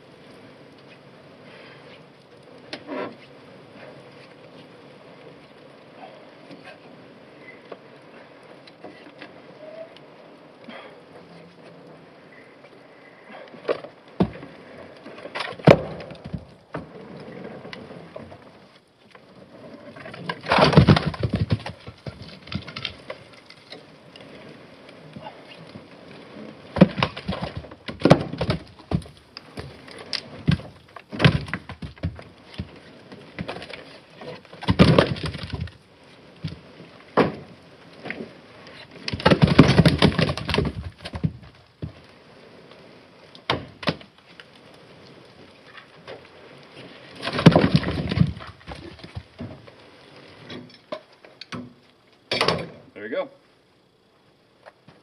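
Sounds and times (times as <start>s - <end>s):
firewood logs clattering: 10.6s - 52.9s.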